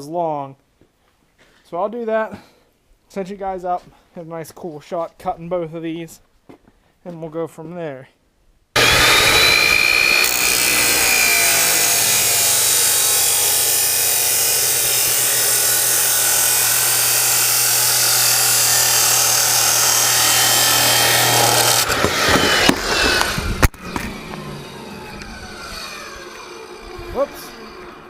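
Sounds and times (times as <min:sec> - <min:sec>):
chop saw cutting steel pipe: 0:08.8 - 0:28.0.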